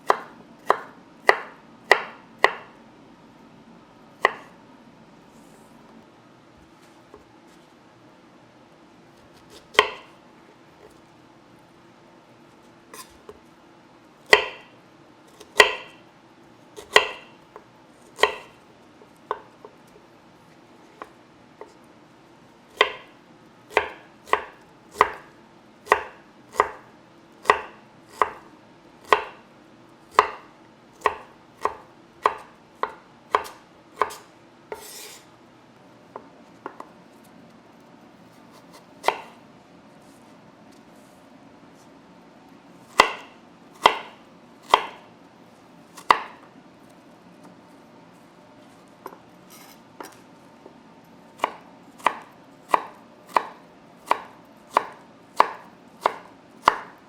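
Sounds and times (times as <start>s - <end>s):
knife chopping on cutting board: 0.0s - 2.8s, 4.2s - 4.6s, 9.2s - 10.2s, 12.9s - 13.4s, 14.2s - 14.7s, 15.4s - 16.0s, 16.8s - 19.8s, 22.7s - 29.4s, 30.1s - 35.3s, 36.1s - 37.0s, 38.3s - 39.4s, 42.9s - 45.1s, 45.9s - 46.5s, 49.0s - 50.3s, 51.4s - 57.0s
knife scraping: 12.9s - 13.4s, 34.0s - 35.3s, 38.2s - 39.4s, 48.6s - 50.3s.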